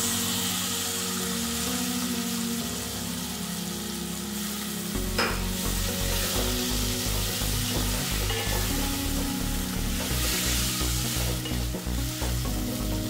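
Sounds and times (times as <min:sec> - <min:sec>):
tomatoes sizzling in hot oil: 0:00.0 - 0:13.0.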